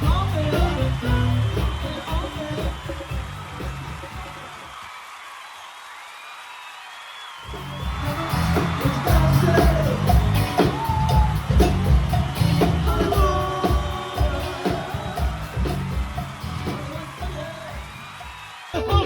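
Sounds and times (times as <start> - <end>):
person singing: 0.0 - 3.2, 8.6 - 11.8, 12.6 - 18.0, 18.7 - 19.0
band music with drums and bass: 0.0 - 4.7, 7.5 - 19.0.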